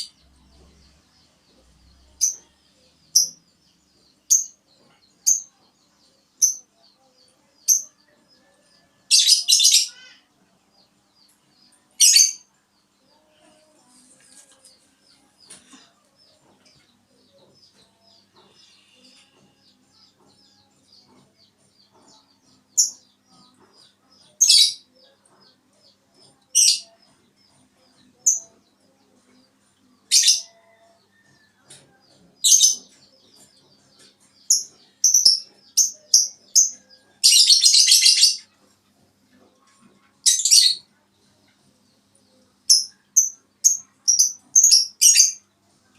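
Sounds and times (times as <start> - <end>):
small bird chirping: 30.0 - 41.6, 42.3 - 45.4.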